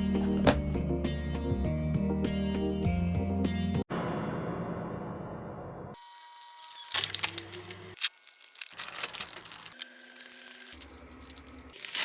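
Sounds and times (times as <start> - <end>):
crackling rustling handling noise: 6.4 - 12.0.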